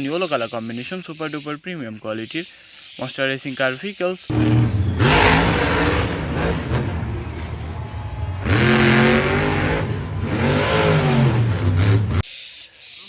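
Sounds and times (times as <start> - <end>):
racing car engine revving: 4.3 - 12.2.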